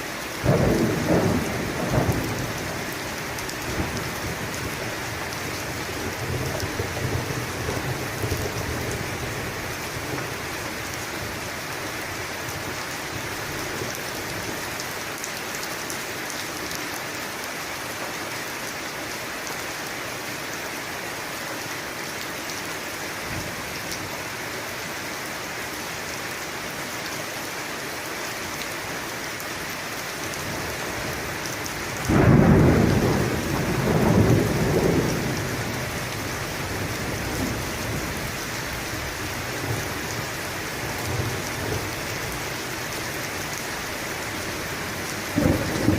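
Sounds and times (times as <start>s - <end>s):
heavy rain falling: 0.0s - 45.9s
thunder clap and rumble: 0.4s - 4.8s, 32.0s - 38.4s, 45.2s - 45.9s.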